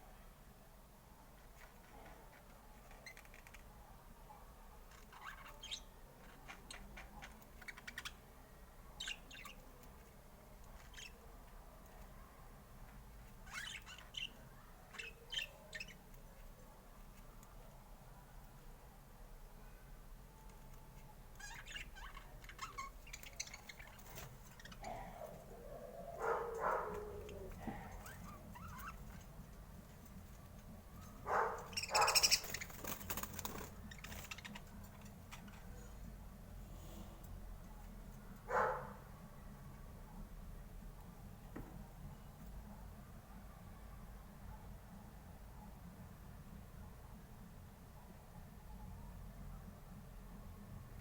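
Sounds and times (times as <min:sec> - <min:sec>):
budgerigar chirping: 0:31.3 - 0:32.9
budgerigars chirping: 0:31.3 - 0:34.6.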